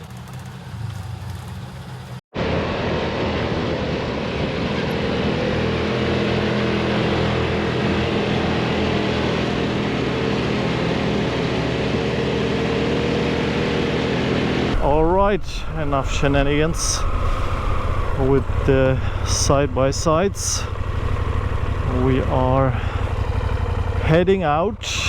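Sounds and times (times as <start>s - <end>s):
vehicle engine running: 0.0s - 25.0s
wind and road noise: 0.0s - 25.0s.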